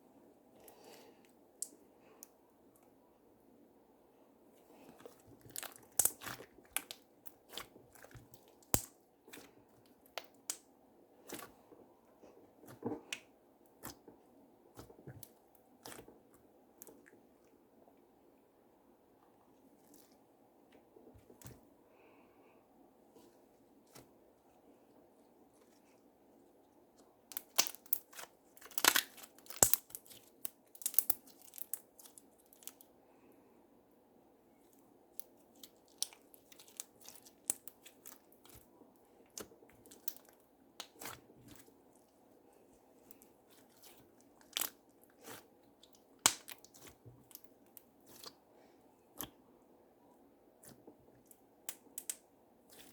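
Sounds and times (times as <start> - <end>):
slime squished by hand: 4.9 - 11.7, 27.3 - 32.8, 35.2 - 38.7, 39.3 - 42.1, 43.0 - 48.4.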